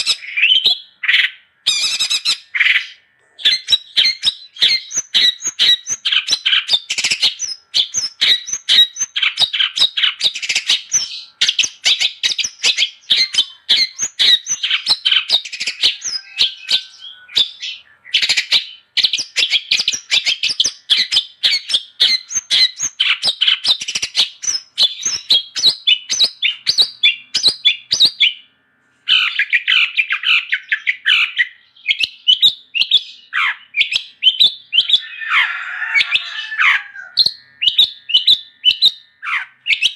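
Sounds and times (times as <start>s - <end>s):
bird singing chattering notes: 0.0s - 28.5s, 29.1s - 35.2s, 36.1s - 39.9s.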